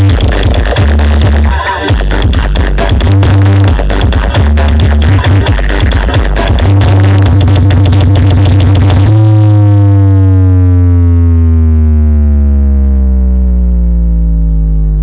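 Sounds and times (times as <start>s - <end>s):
electronic dance music: 0.0s - 13.4s
synth tone gliding down: 9.6s - 15.0s.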